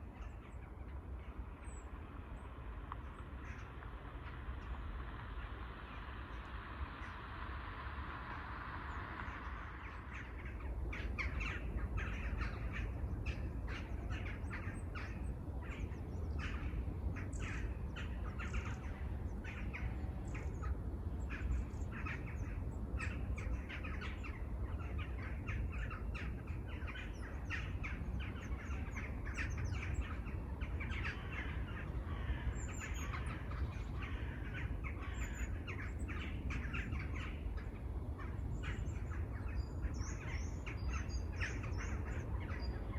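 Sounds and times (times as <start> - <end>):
low rumble: 0.0 - 13.3
birds calling: 8.9 - 42.9.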